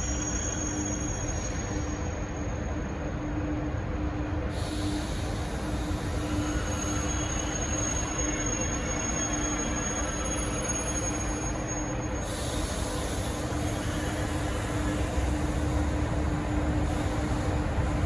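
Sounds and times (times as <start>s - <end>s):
high-speed train rumbling: 0.0s - 18.0s
hiss: 4.6s - 6.9s, 12.2s - 15.8s.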